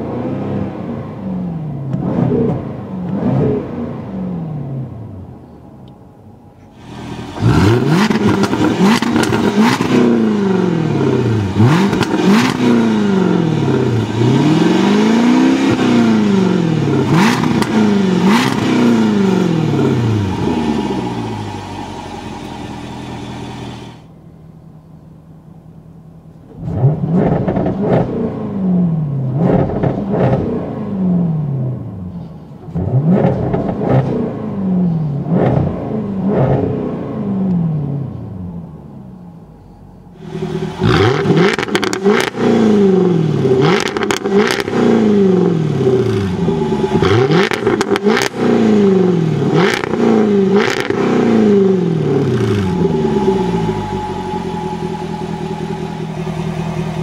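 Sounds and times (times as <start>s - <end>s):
car engine revving: 0.0s - 5.4s, 6.7s - 24.2s, 26.5s - 38.5s, 40.2s - 57.0s
car engine idling: 4.7s - 26.6s, 38.3s - 57.0s.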